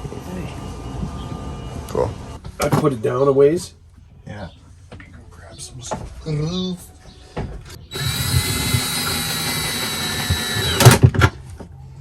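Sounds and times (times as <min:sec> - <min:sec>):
small electric motor whining: 0:07.9 - 0:11.0.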